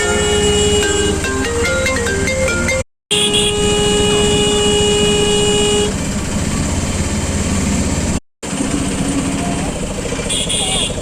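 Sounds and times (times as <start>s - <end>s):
vehicle horn: 0.0s - 1.3s, 3.1s - 6.0s, 10.2s - 11.0s.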